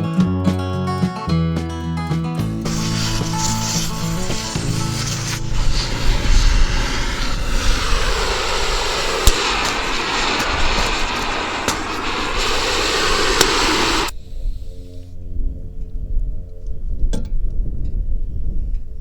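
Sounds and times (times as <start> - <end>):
cutting torch hissing: 2.6 - 14.9
sharp clicks: 7.6 - 14.2.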